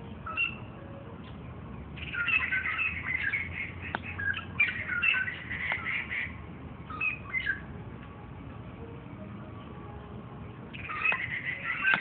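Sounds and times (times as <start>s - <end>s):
bird singing: 0.0s - 7.7s, 9.6s - 12.0s.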